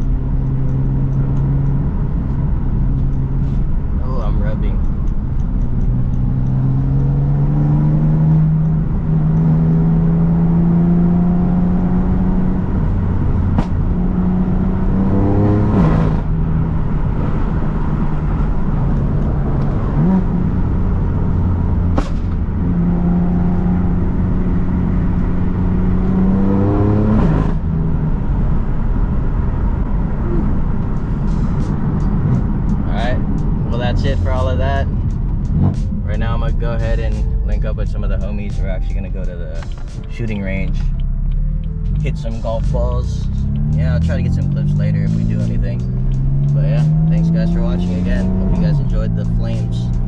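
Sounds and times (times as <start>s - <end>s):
car engine accelerating: 0.0s - 50.0s
sharp clicks: 4.6s - 6.8s.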